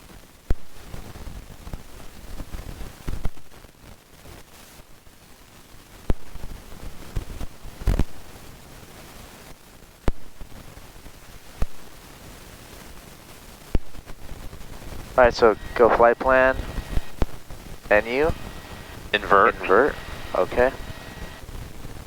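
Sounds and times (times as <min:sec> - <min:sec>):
steady hiss: 0:13.9 - 0:22.0.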